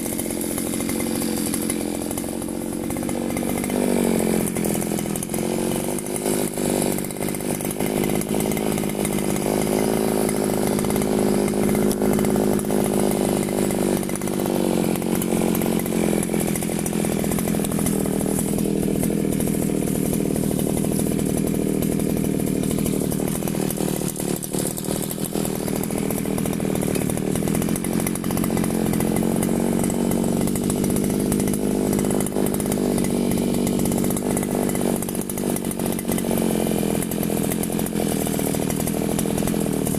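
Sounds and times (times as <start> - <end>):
brush cutter cutting grass: 0.0 - 39.9.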